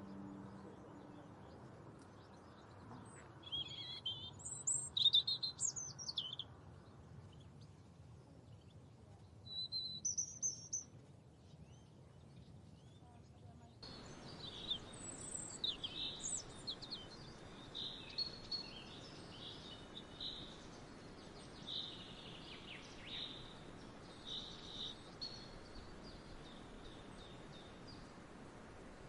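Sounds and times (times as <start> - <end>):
songbirds singing and chirping: 0.0 - 29.0
outdoor hiss: 13.8 - 29.0.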